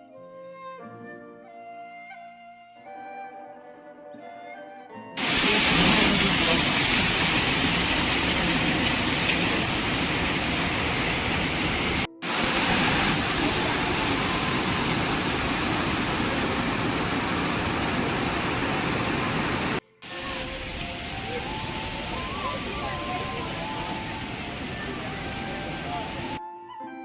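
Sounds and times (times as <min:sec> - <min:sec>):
waterfall rushing: 0:05.2 - 0:26.4.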